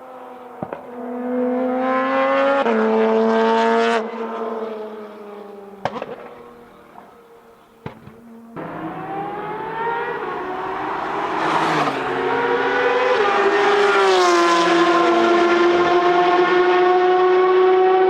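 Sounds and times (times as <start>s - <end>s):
loud sports car engine revving high: 8.6s - 18.0s.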